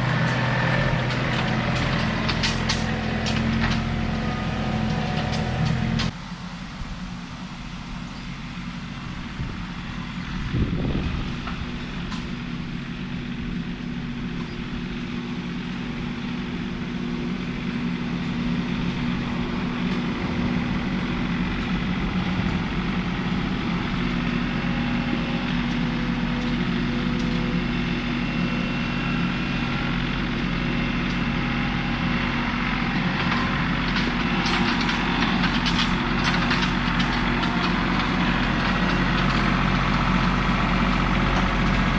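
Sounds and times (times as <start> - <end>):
tractor engine running: 0.0 - 41.9.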